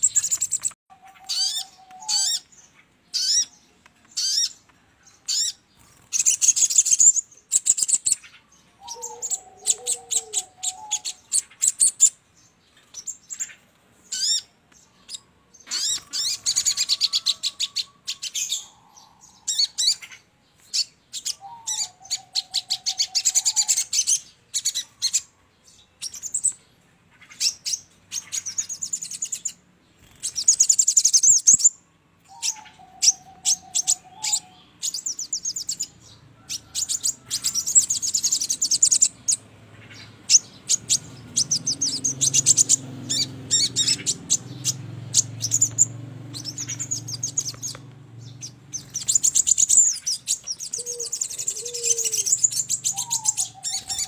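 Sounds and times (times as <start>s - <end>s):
high chirping trills: 0.0s - 54.0s.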